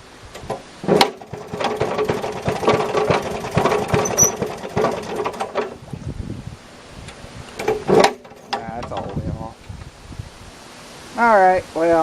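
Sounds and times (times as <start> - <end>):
two-stroke engine running roughly: 0.4 - 5.8.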